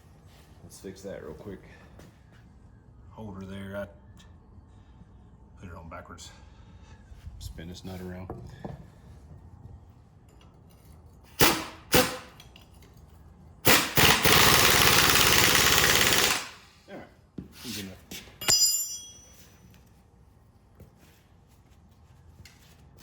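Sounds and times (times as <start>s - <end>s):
impact wrench hammering: 11.4s - 12.4s, 13.7s - 16.6s
sharp metallic clink: 18.4s - 19.6s.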